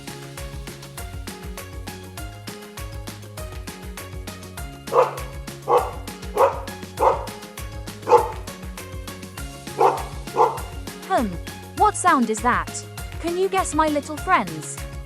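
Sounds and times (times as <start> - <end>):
background music: 0.0 - 15.0
dog barking: 4.9 - 7.4, 8.0 - 8.6, 9.7 - 10.8.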